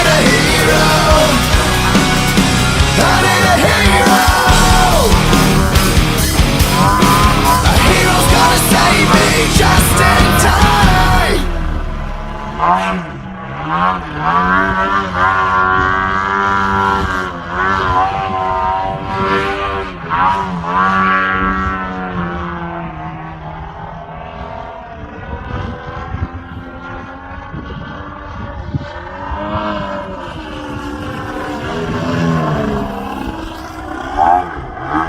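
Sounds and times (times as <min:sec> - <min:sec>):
wind rumbling on microphone: 0:24.9 - 0:34.9
model plane engine revving: 0:26.2 - 0:35.0.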